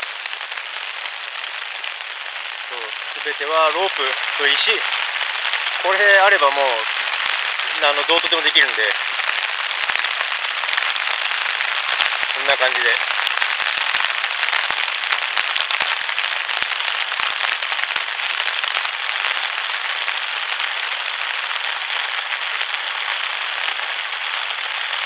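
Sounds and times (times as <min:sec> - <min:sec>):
big raindrops ticking: 0:00.0 - 0:25.0
heavy rain hissing: 0:00.0 - 0:25.0.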